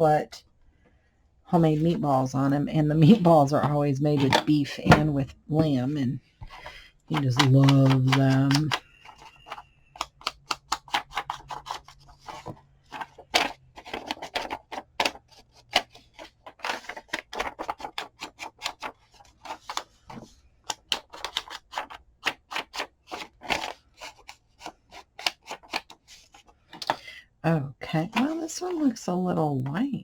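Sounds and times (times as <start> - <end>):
tapping and clicking on paper: 7.1 - 26.0.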